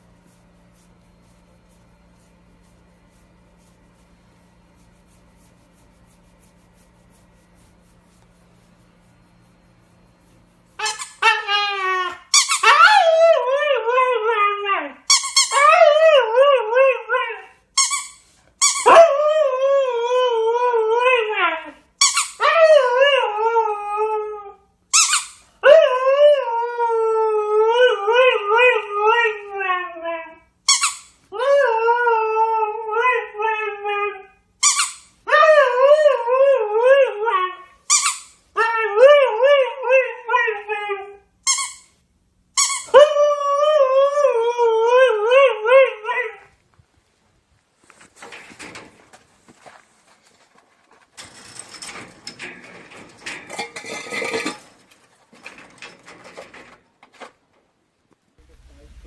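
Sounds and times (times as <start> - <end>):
steady low hum: 0.0 - 12.4, 37.6 - 59.0.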